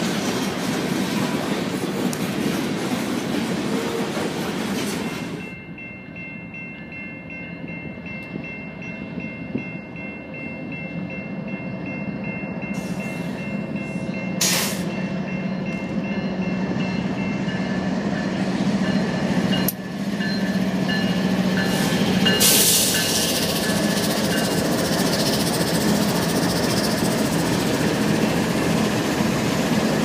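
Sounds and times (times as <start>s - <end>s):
diesel locomotive engine drone: 0.0s - 30.0s
crossing bell ringing: 4.9s - 30.0s.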